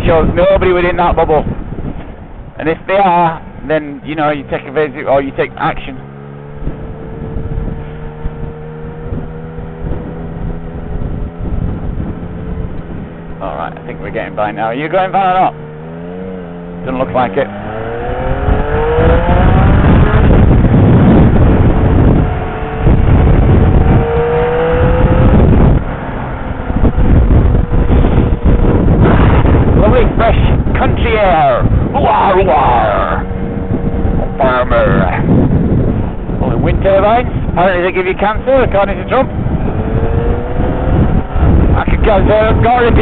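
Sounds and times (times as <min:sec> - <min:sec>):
wind rumbling on microphone: 0:00.0 - 0:43.0
motorcycle engine running: 0:01.4 - 0:43.0.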